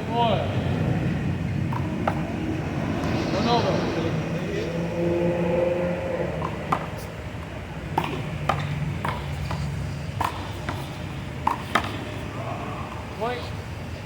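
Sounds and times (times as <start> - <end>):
handball smacking wall and pavement: 8.0 - 12.1.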